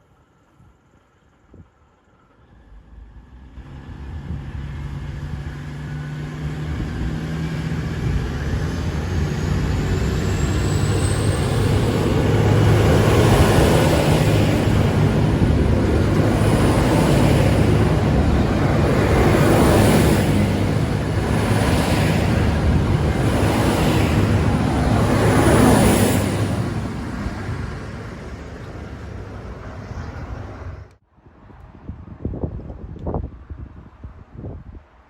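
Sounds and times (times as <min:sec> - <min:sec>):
diesel train engine: 0:00.0 - 0:31.0
train wheel noise: 0:08.2 - 0:30.9.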